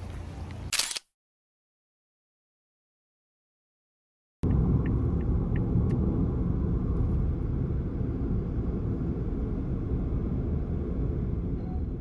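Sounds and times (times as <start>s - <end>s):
car driving rumble: 4.4s - 12.0s.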